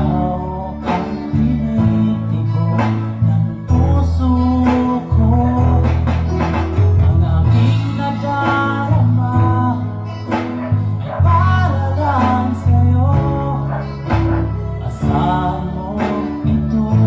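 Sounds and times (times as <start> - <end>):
heavy bass notes: 0.0 - 17.0
man singing: 0.0 - 17.0
plucked guitar: 0.0 - 17.0
song over loudspeakers: 0.0 - 17.0.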